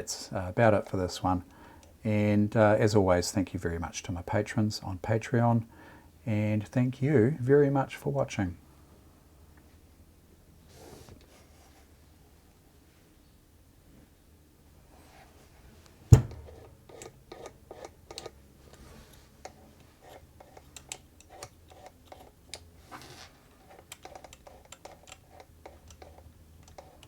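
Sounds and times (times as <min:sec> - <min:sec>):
loud knock: 0:16.2 - 0:16.6.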